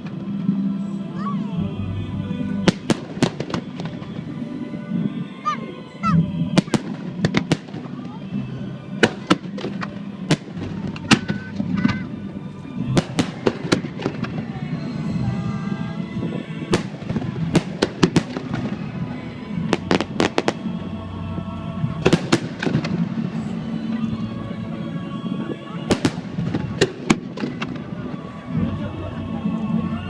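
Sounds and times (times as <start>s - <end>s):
background music: 0.0s - 30.0s
fireworks bursting in bangs: 2.6s - 5.2s, 6.5s - 12.2s, 12.8s - 21.0s, 21.9s - 24.0s, 25.3s - 28.8s.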